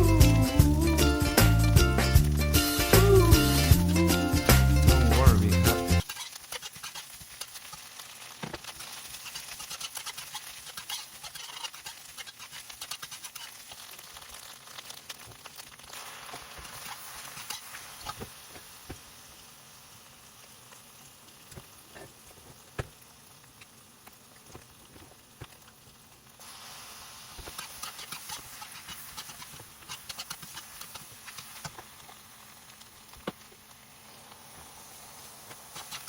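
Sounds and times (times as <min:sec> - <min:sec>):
noodles sizzling in a pan: 0:00.0 - 0:05.3, 0:05.9 - 0:36.0
utensil clicking against pan: 0:27.4 - 0:32.1.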